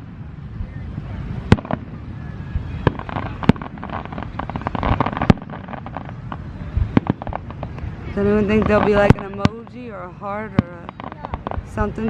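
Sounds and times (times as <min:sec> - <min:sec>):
firework bangs: 0:00.0 - 0:12.0
fireworks crackling: 0:00.0 - 0:12.0
low rumble: 0:00.0 - 0:12.0.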